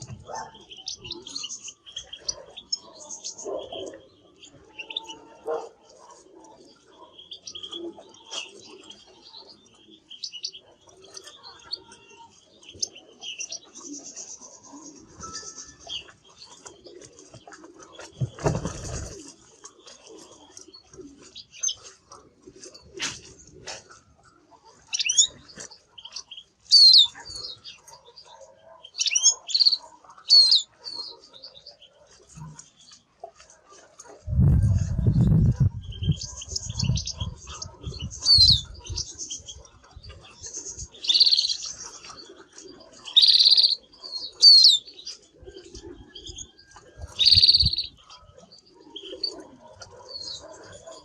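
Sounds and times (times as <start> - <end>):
canary singing: 0.0 - 17.4, 24.6 - 32.1, 34.9 - 45.3, 46.2 - 49.4
canary singing whistled phrases: 26.7 - 27.5, 43.1 - 44.8
soft bird chirps: 34.6 - 51.0.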